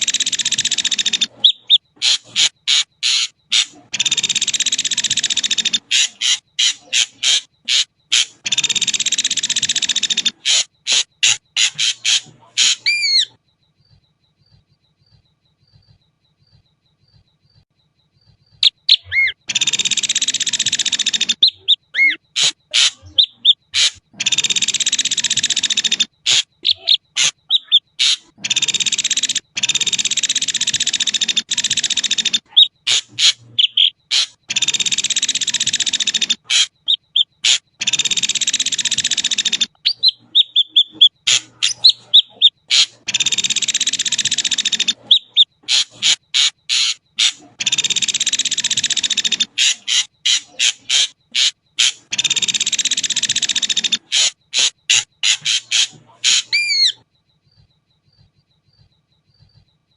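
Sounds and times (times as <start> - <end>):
bird harsh hissing calls: 0.0 - 13.3, 21.0 - 24.4, 25.3 - 29.4, 32.0 - 34.6, 35.2 - 57.0
bird sharp notes and whistles: 0.0 - 13.4, 18.1 - 59.8.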